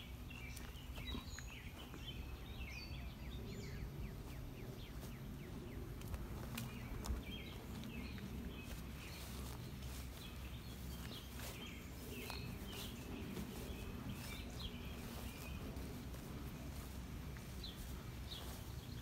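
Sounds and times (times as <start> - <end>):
low outdoor rumble: 0.0 - 19.0
small birds chirping: 0.0 - 19.0.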